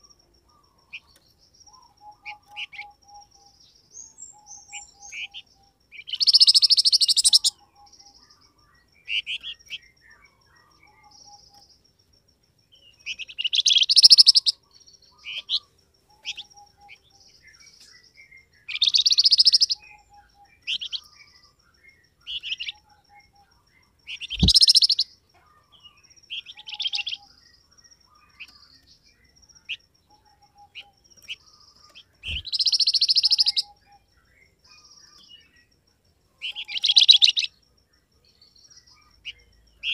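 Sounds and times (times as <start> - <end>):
bird chattering song: 0.0 - 12.0, 12.7 - 35.8, 36.4 - 39.9
short high bird chirps: 24.1 - 25.0, 32.2 - 33.7.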